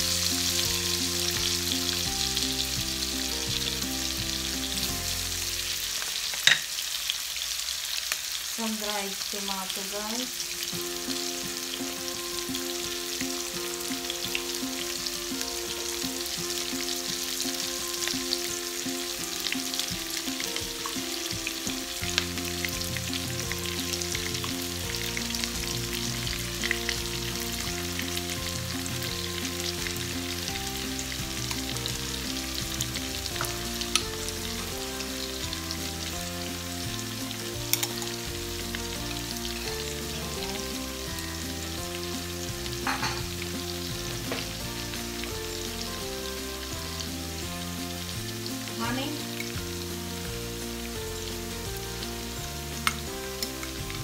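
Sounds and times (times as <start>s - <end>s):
vegetables sizzling in hot oil: 0.0s - 54.0s
sharp ticks of food spooned in: 37.7s - 38.1s.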